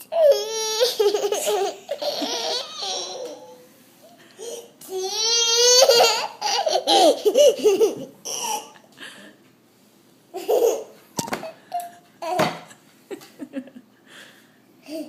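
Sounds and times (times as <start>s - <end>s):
toddler laughing: 0.0s - 3.6s, 4.4s - 8.9s, 10.4s - 12.8s.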